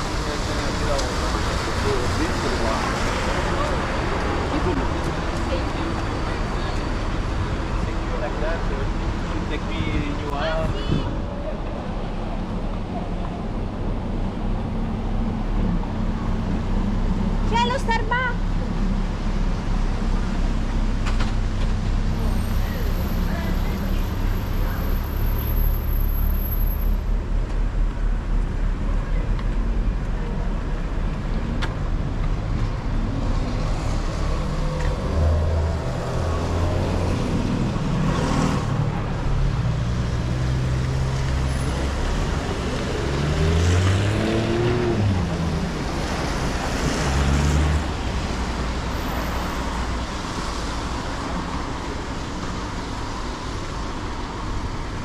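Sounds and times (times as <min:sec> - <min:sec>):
road noise: 0:00.0 - 0:55.0
vehicles passing: 0:00.0 - 0:55.0
vehicle engine pulling away: 0:33.3 - 0:48.3.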